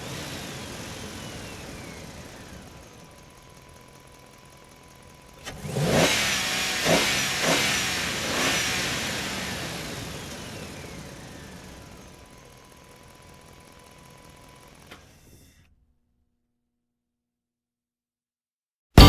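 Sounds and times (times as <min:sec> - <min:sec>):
car engine revving: 0:05.5 - 0:11.6.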